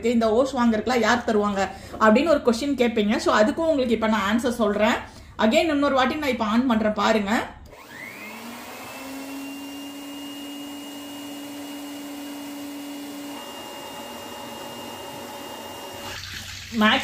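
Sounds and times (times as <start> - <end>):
electric air blower whining: 7.7 - 16.2.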